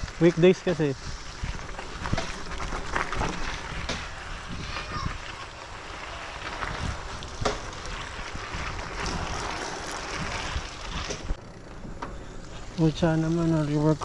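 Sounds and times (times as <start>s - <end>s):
bicycle tyres rolling on trail: 0.0s - 14.0s
wind on microphone: 1.0s - 5.5s, 6.2s - 11.4s
bike knocks: 1.7s - 4.6s, 6.9s - 7.8s, 9.0s - 13.5s.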